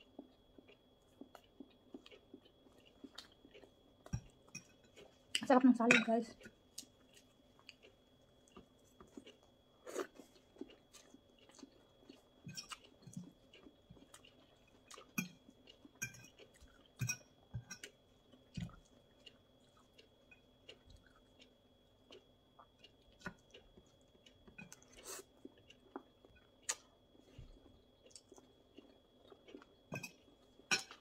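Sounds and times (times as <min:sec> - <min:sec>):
chewing salad: 0:00.0 - 0:31.0.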